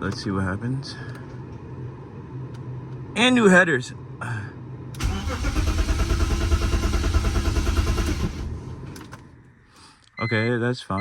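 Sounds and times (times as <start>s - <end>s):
car engine cranking without starting: 4.9s - 9.3s.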